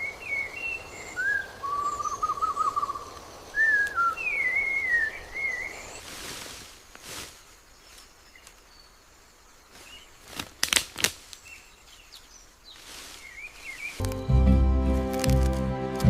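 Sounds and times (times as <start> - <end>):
bird chirps: 0.0 - 6.0
sharp cracks: 10.3 - 11.4, 15.0 - 16.0
music: 14.0 - 16.0.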